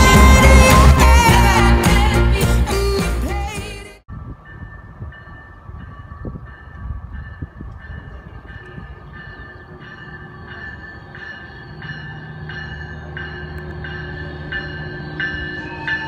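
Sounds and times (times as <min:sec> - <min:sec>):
locomotive bell ringing: 0:04.3 - 0:16.0
locomotive engine drone: 0:04.3 - 0:16.0.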